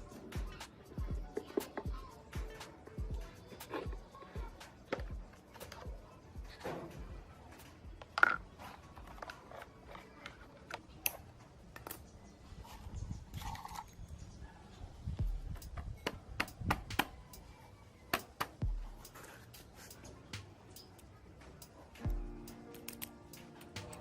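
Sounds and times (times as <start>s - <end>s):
tools clicking and tapping: 1.3s - 2.7s, 15.2s - 17.5s, 18.1s - 24.0s.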